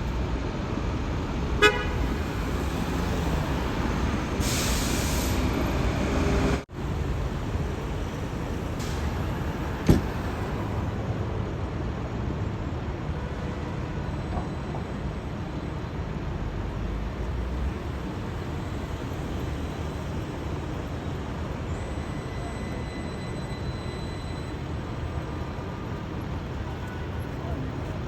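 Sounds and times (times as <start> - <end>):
vehicle rumble: 0.0 - 12.2
sharp knock: 9.9 - 10.2.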